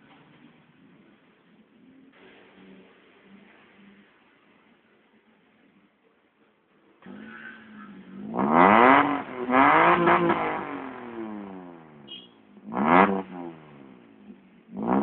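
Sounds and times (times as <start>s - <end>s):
car engine revving: 7.0s - 15.0s.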